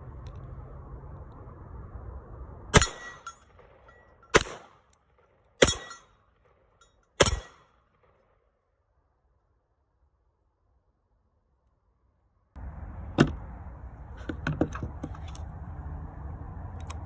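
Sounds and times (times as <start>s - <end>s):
handgun shots: 4.3s - 4.8s, 5.6s - 6.0s, 7.2s - 7.7s.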